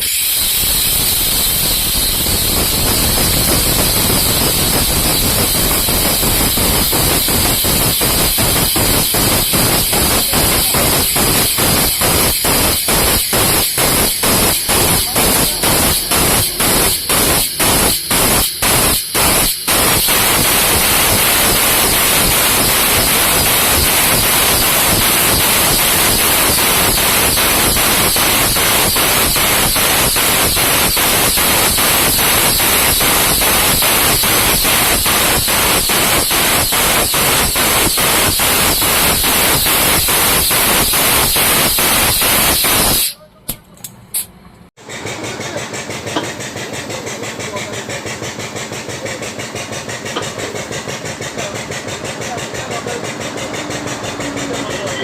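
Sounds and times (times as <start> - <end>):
loud pulsing machine noise: 0.0 - 43.1, 44.8 - 55.0
engine idling: 44.8 - 55.0.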